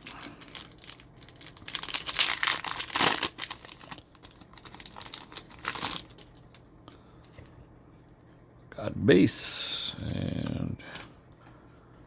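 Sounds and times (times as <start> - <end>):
plastic wrapper tearing and crinkling: 0.0 - 6.7.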